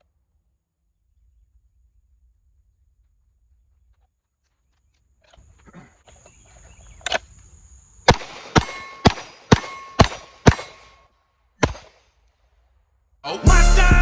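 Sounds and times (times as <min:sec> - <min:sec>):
pistol shots: 0:08.1 - 0:11.0, 0:11.6 - 0:12.0.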